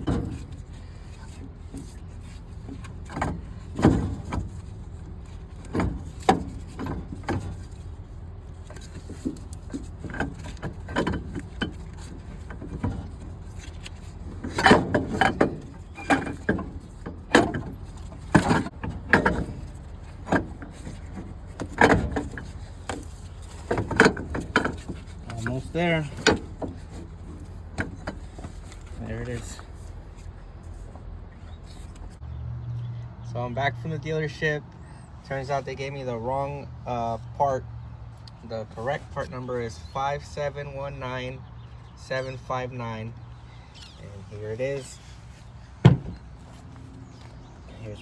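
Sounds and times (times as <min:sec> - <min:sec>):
metal knocks and clunks: 0:00.0 - 0:02.0, 0:02.6 - 0:08.0, 0:08.6 - 0:29.8, 0:45.8 - 0:47.4.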